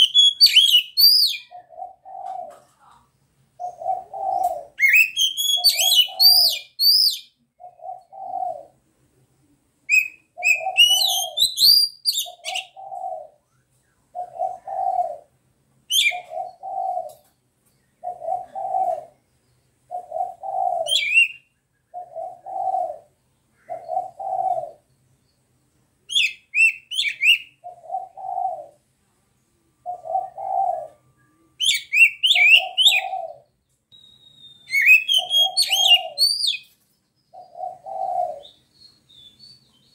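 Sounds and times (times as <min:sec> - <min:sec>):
bird singing whistled notes: 0:00.0 - 0:01.7, 0:04.3 - 0:07.4, 0:09.9 - 0:14.4, 0:15.9 - 0:16.9, 0:19.2 - 0:21.7, 0:26.1 - 0:27.6, 0:31.1 - 0:33.2, 0:33.9 - 0:39.9
dove cooing: 0:00.0 - 0:08.9, 0:09.9 - 0:17.4, 0:18.0 - 0:19.2, 0:19.9 - 0:24.9, 0:26.1 - 0:28.9, 0:29.6 - 0:33.6, 0:34.7 - 0:36.7, 0:37.3 - 0:38.6.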